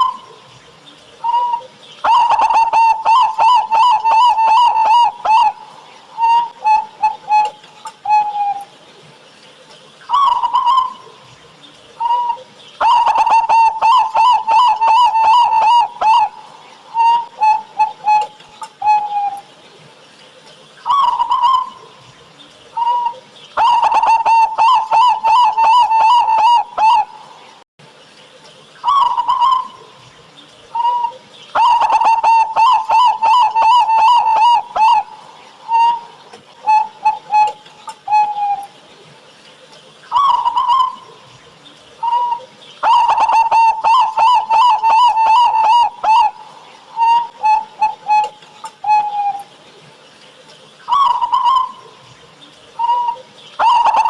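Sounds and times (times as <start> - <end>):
dove cooing: 0.0 - 8.8, 10.1 - 19.6, 20.9 - 27.5, 28.8 - 38.8, 40.1 - 49.6, 50.9 - 54.0.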